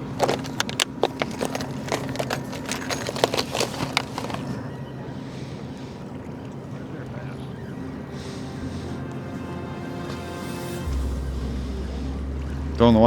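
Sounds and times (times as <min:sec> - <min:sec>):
clicks and knocks: 0:00.0 - 0:04.5.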